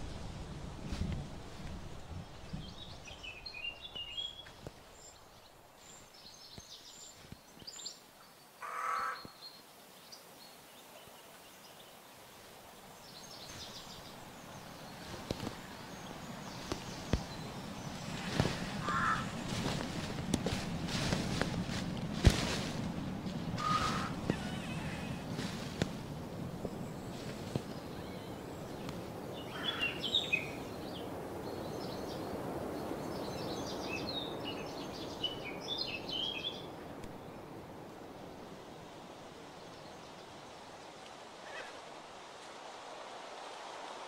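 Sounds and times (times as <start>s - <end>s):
loud bird calls: 8.6s - 9.6s, 13.3s - 21.5s, 23.5s - 25.9s, 26.5s - 37.2s, 41.4s - 41.8s.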